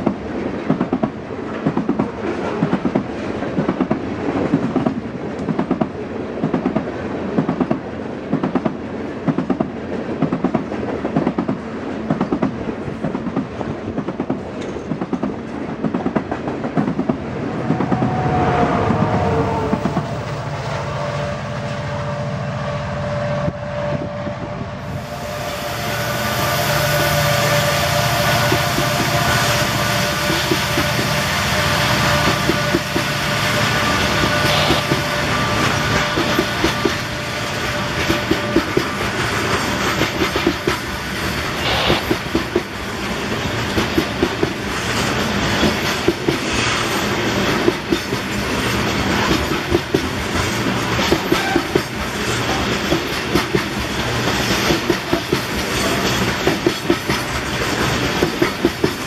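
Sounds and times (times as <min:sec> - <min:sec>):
train wheels clickety-clack: 0:00.0 - 0:20.5, 0:25.0 - 0:59.0
diesel locomotive drone and whine: 0:15.5 - 0:59.0.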